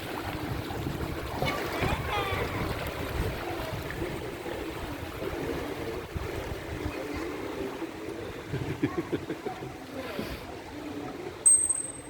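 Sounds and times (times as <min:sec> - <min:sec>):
wind buffeting microphone: 0:00.0 - 0:07.2
water sloshing around hull: 0:00.0 - 0:11.4.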